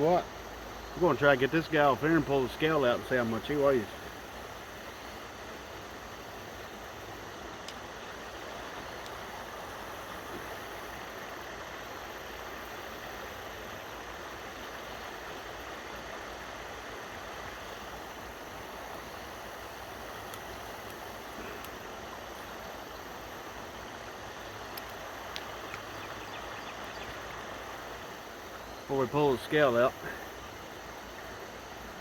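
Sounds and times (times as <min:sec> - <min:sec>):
river water flowing: 0:00.0 - 0:32.0
faint clicks: 0:07.6 - 0:07.9, 0:08.9 - 0:09.2, 0:20.2 - 0:21.8, 0:24.6 - 0:26.2.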